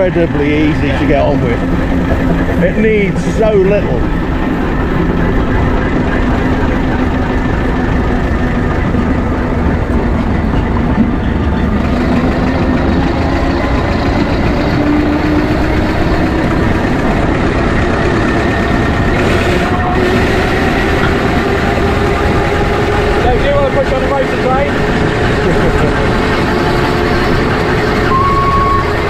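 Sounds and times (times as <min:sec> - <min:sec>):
steam engine running: 0:00.0 - 0:29.0.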